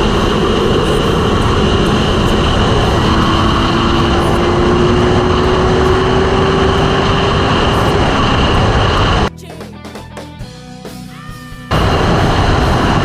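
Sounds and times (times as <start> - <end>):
motorcycle engine accelerating: 0.0 - 9.3, 11.7 - 13.0
wind rush over microphone: 0.0 - 9.3, 11.7 - 13.0
music: 9.3 - 13.0.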